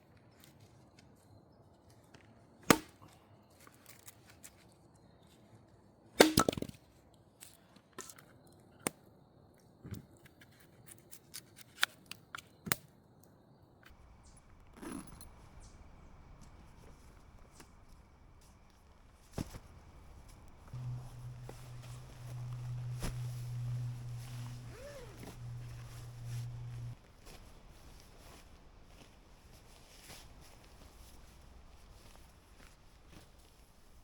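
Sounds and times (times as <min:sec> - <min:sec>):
wood being chopped: 0:02.7 - 0:02.9, 0:06.2 - 0:06.7
faint high tone: 0:20.8 - 0:27.0.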